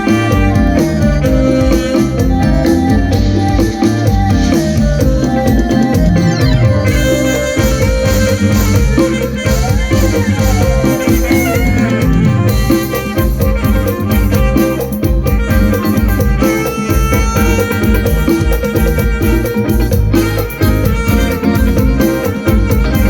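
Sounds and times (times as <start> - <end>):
bass: 0.0 - 23.0
drum kit beat: 0.0 - 23.0
plucked string lead: 4.6 - 9.1.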